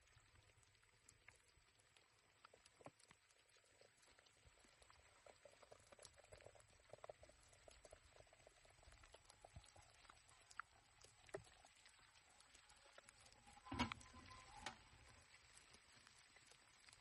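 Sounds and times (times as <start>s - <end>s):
faint ticks: 0.0s - 17.0s.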